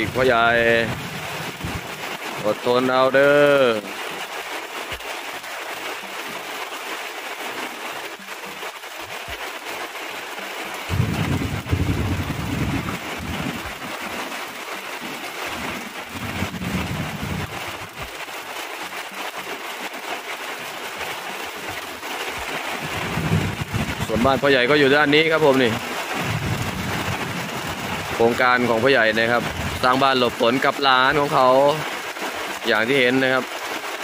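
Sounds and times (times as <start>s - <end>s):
thunder rumble: 0.0s - 2.0s, 10.9s - 14.0s, 15.5s - 18.1s, 22.8s - 28.2s, 29.4s - 29.9s
rain falling: 0.0s - 34.0s.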